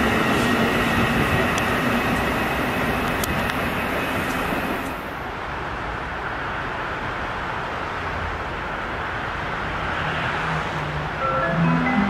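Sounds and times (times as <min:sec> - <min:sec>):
train wheels rumbling on rail: 0:00.0 - 0:09.9.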